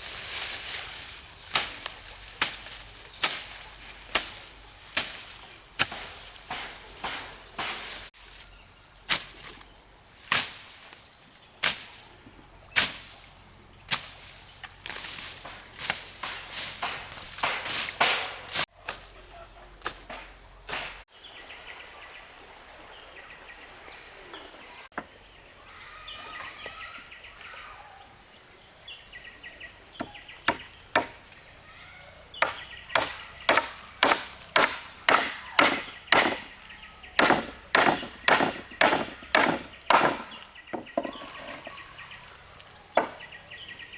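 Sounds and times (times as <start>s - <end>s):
birds calling: 0.0s - 19.8s, 22.9s - 43.9s
hand tool striking wood: 1.5s - 8.2s, 13.9s - 19.0s, 19.8s - 21.0s, 30.0s - 31.2s, 32.4s - 36.5s, 37.2s - 41.4s, 43.0s - 43.2s.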